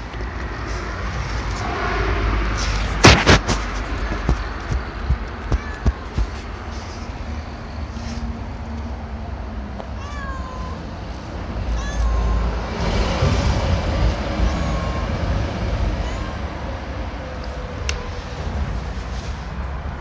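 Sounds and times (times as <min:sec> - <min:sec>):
cat meowing: 0:05.4 - 0:06.4, 0:10.0 - 0:10.9, 0:11.6 - 0:12.7, 0:14.4 - 0:15.3, 0:15.9 - 0:16.7.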